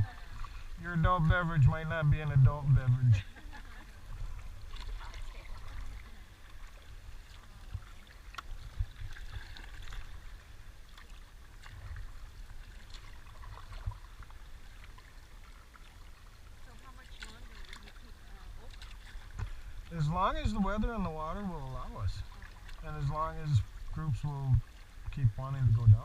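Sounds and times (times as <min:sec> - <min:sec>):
low uneven rumble: 0:00.0 - 0:26.0
river water splashing and trickling: 0:00.0 - 0:26.0.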